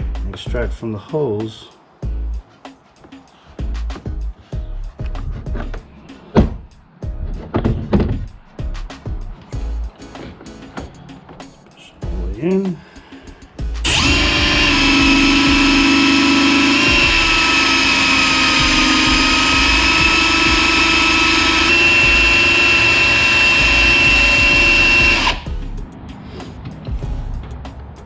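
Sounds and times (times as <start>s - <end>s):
oil pump motor whine: 13.9s - 25.4s.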